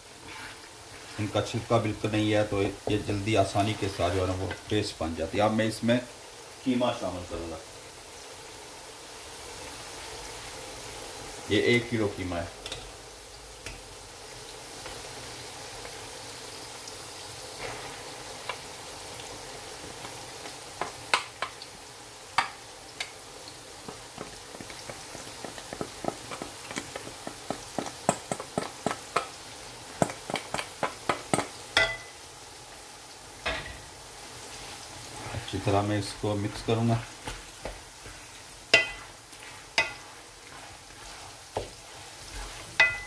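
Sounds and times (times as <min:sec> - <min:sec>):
masala sizzling in a pot: 0:00.0 - 0:43.0
spatula tapping colander and pot: 0:02.6 - 0:03.7, 0:20.8 - 0:21.6, 0:22.4 - 0:23.2, 0:23.8 - 0:32.2, 0:38.7 - 0:40.2, 0:42.8 - 0:43.0.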